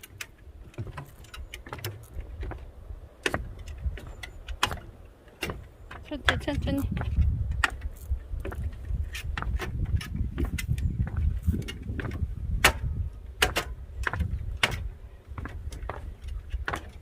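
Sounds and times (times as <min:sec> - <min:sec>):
footsteps snapping twigs: 0:06.9 - 0:12.8.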